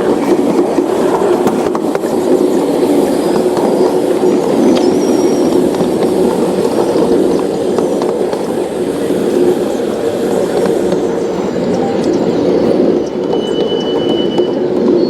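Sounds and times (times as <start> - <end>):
model train running: 0.0 - 15.0
thin wheel squeal: 12.6 - 15.0.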